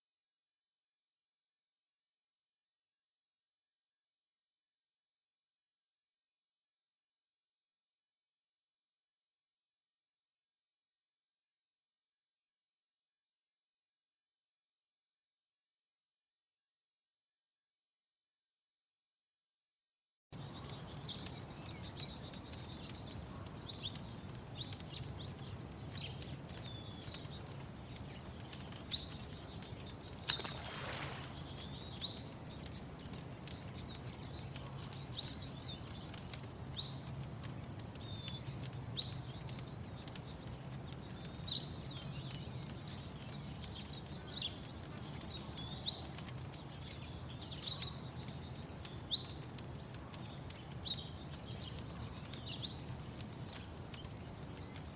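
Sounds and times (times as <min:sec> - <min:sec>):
small birds chirping: 0:20.4 - 0:54.9
wood fire crackling: 0:20.4 - 0:54.9.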